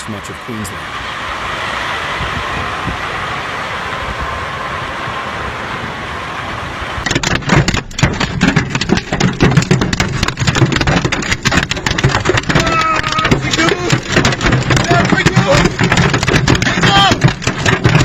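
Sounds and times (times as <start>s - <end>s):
hail and rain pouring: 7.0s - 18.0s
hailstones clattering on hard surface: 7.0s - 18.0s.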